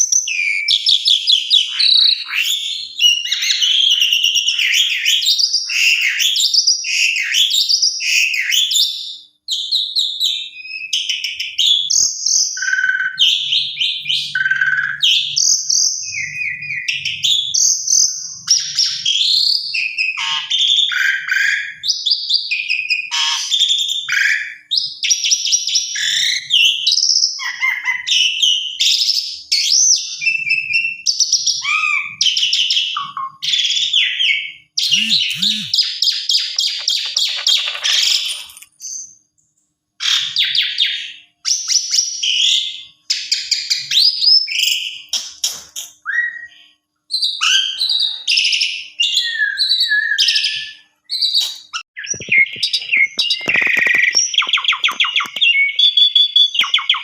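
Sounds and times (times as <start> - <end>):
starling singing: 34.8 - 35.8, 52.0 - 57.0.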